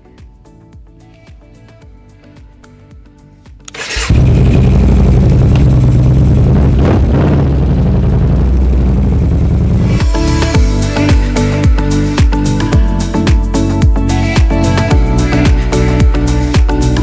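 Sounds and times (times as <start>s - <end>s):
motorcycle engine starting and running: 3.7s - 14.0s.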